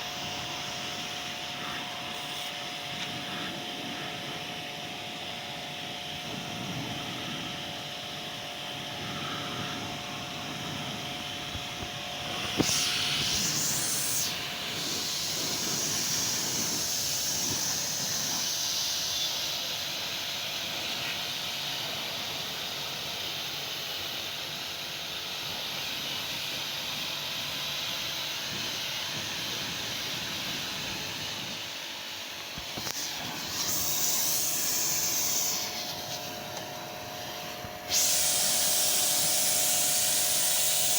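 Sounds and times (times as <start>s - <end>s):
water spray hissing: 12.4s - 19.7s, 32.6s - 36.6s, 37.2s - 40.9s.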